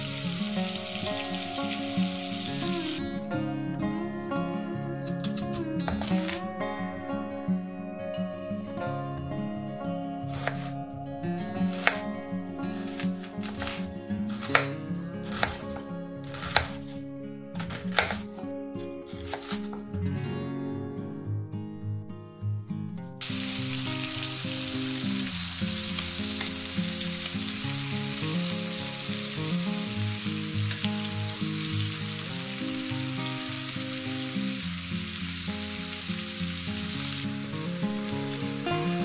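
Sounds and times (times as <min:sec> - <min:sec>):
food sizzling in frying pan: 0:00.0 - 0:03.0, 0:23.2 - 0:39.0
background music: 0:00.0 - 0:39.0.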